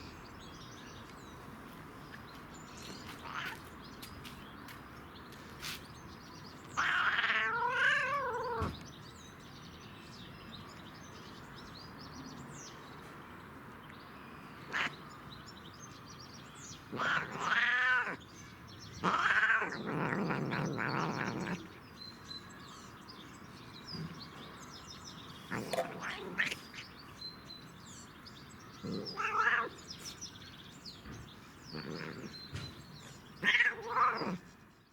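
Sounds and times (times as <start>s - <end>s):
cat meowing: 6.8s - 8.7s, 14.7s - 14.9s, 16.9s - 18.2s, 19.0s - 21.7s, 25.5s - 26.8s, 28.8s - 29.8s, 33.4s - 34.4s.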